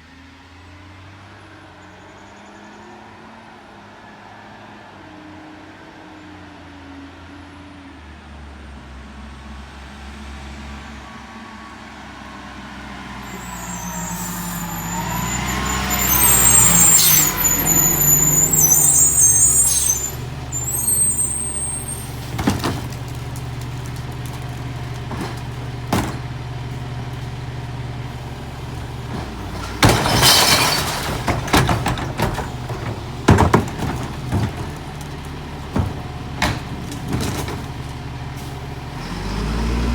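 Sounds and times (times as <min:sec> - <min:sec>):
air brakes squealing and hissing: 0:01.8 - 0:03.1, 0:13.2 - 0:23.0, 0:28.2 - 0:34.7
garbage truck diesel engine: 0:12.6 - 0:39.9.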